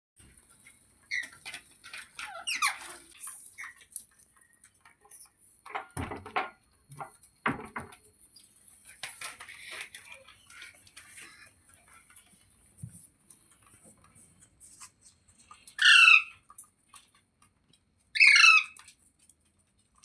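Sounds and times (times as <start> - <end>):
parrot squeaking and chirping: 1.1 - 3.8, 15.7 - 16.5, 18.1 - 18.8.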